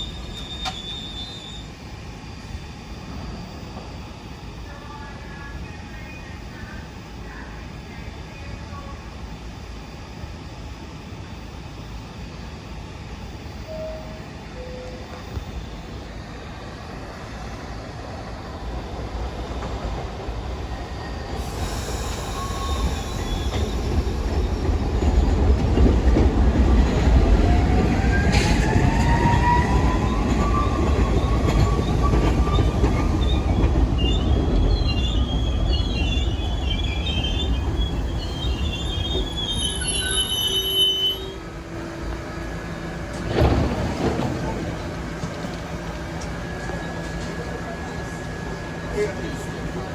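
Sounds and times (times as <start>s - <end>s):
wheel and brake squeal: 0.0s - 1.8s, 21.4s - 24.4s, 28.2s - 41.4s
subway train rumble: 0.0s - 49.9s.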